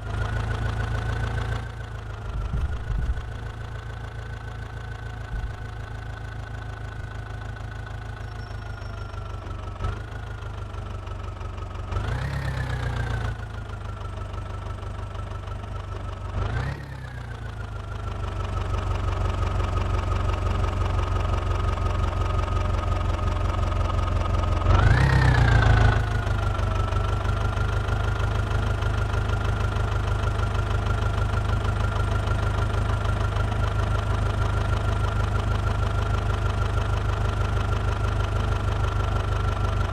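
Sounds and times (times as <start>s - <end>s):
diesel engine revving: 11.8s - 13.4s, 16.3s - 17.4s, 24.4s - 28.8s.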